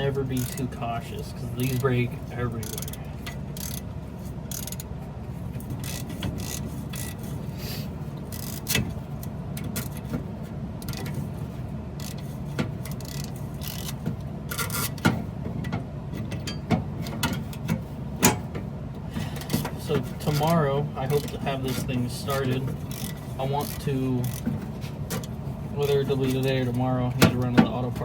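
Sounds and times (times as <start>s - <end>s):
wrench scraping metal: 0.0s - 4.9s, 5.6s - 7.5s, 8.2s - 9.0s, 12.0s - 15.1s, 19.4s - 28.0s
steady low hum: 0.0s - 28.0s
hand ratchet clicking: 0.3s - 0.8s, 1.6s - 2.0s, 2.6s - 3.9s, 4.5s - 4.9s, 5.8s - 7.3s, 8.3s - 10.1s, 12.0s - 15.1s, 19.4s - 27.5s.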